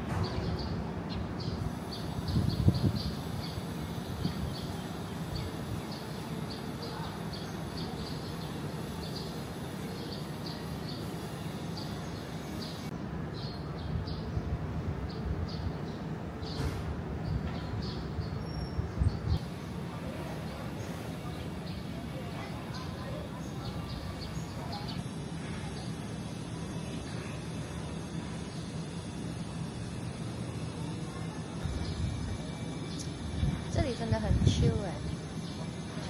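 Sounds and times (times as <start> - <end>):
birds chirping: 0.0 - 14.5, 15.1 - 30.6
wind rumble on microphone: 1.4 - 5.9, 13.6 - 19.5, 31.6 - 35.3.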